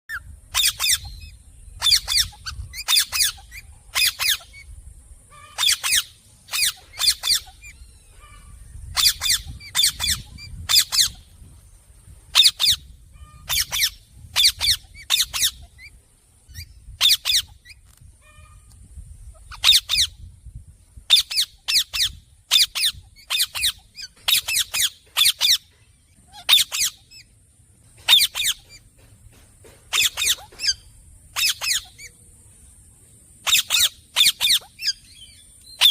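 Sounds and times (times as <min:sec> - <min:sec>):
parrot squawking: 0:00.5 - 0:04.7, 0:05.3 - 0:11.2, 0:12.4 - 0:15.9, 0:26.3 - 0:27.2, 0:31.4 - 0:32.1, 0:33.5 - 0:35.2.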